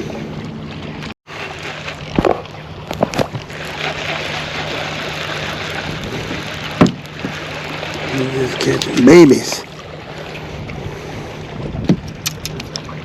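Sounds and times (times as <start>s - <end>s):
water noise: 0.0s - 13.0s
wind: 0.0s - 13.0s
sharp knocks: 6.8s - 7.4s.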